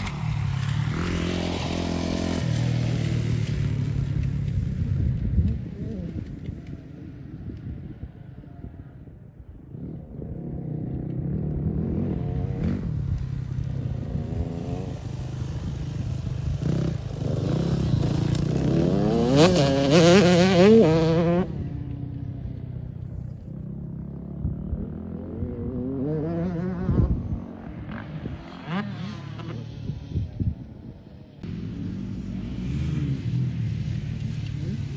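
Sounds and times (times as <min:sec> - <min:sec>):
dirt bike engine revving: 0:09.9 - 0:21.7.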